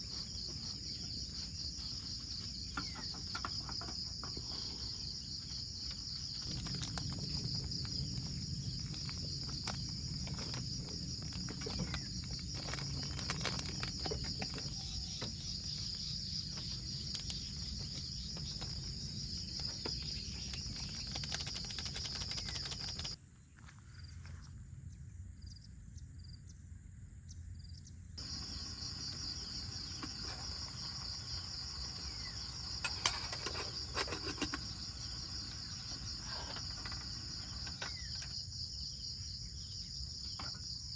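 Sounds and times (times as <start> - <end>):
crickets trilling: 0.0 - 23.5, 27.3 - 40.9.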